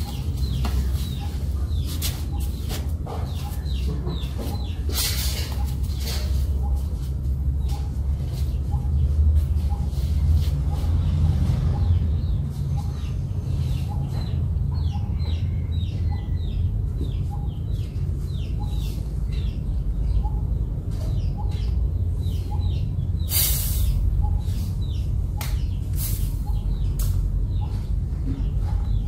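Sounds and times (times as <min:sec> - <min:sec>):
small birds chirping: 0:00.0 - 0:29.0
loud hiss: 0:23.3 - 0:23.9.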